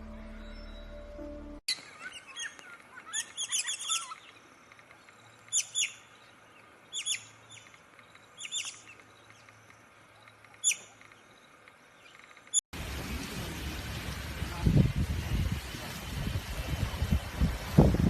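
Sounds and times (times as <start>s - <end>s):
bird chirping: 0.1s - 12.6s.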